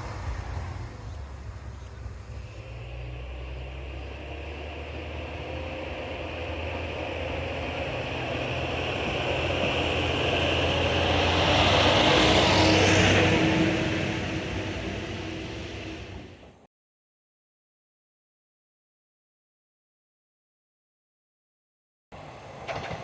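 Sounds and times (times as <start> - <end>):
diesel railcar passing: 0.0 - 16.7, 22.1 - 23.0.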